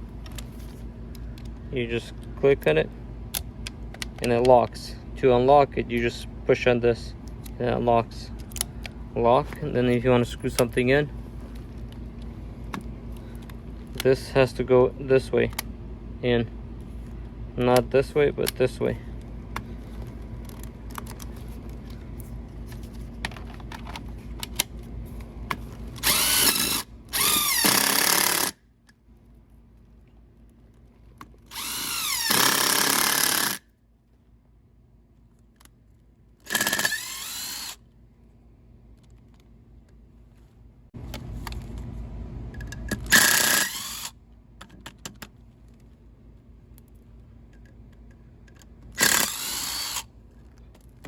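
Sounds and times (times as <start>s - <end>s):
power drill driving screws: 26.0s - 28.6s, 31.5s - 33.6s, 36.5s - 37.8s, 43.1s - 44.1s, 49.0s - 50.1s.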